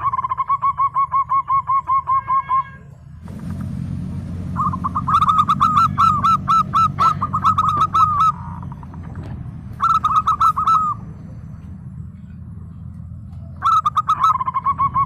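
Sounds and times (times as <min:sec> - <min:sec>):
dove cooing: 0:00.0 - 0:02.8, 0:04.5 - 0:11.4, 0:13.3 - 0:15.0
low hum: 0:02.7 - 0:15.0.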